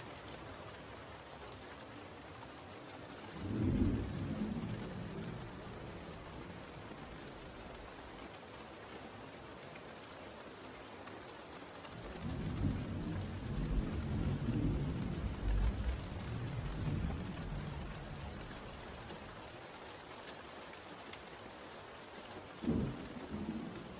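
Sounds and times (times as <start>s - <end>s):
rain falling: 0.0s - 23.9s
low rumble of thunder: 3.4s - 8.0s, 12.0s - 19.4s, 22.6s - 23.9s.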